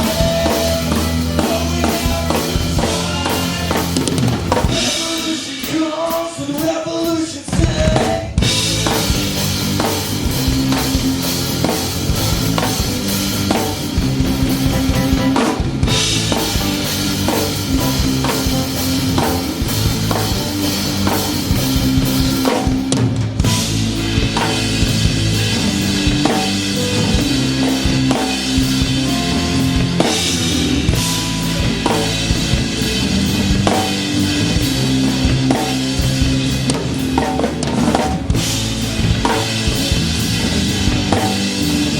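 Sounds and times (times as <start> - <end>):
live band playing: 0.0 - 41.9
held low instrument notes: 14.0 - 20.0.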